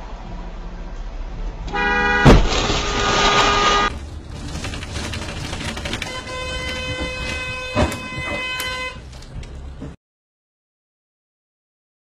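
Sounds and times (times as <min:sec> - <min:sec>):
vehicle and road rumble: 0:00.0 - 0:10.0
vehicle horn: 0:01.7 - 0:03.9, 0:06.0 - 0:09.1.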